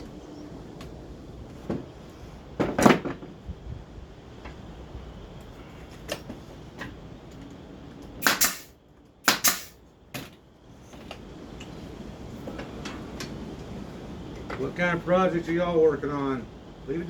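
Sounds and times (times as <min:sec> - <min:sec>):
brad nailer firing into wood: 0:08.2 - 0:09.8.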